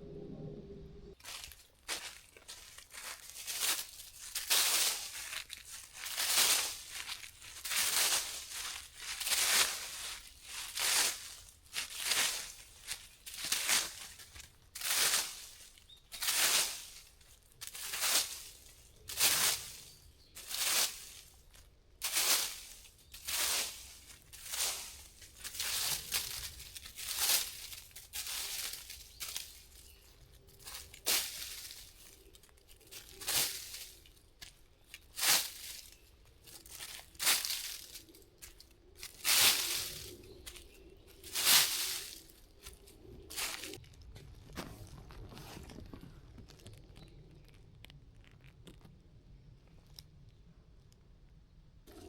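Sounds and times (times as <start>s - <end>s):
wind rumbling on microphone: 0.0s - 1.2s, 39.0s - 50.4s
rustling and crinkling: 1.1s - 52.0s.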